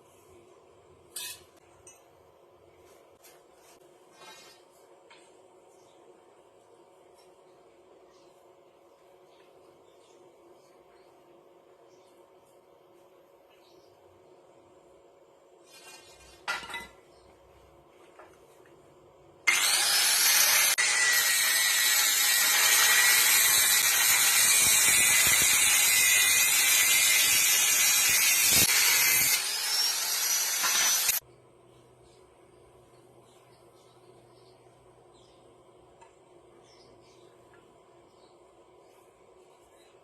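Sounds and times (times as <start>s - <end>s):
angle grinder cutting steel: 19.5s - 31.2s.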